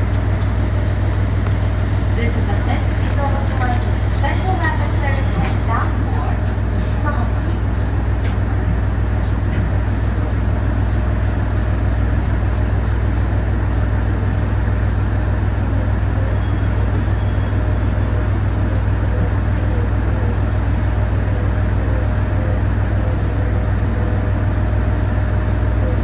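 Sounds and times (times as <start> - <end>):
railcar engine drone: 0.0 - 26.0.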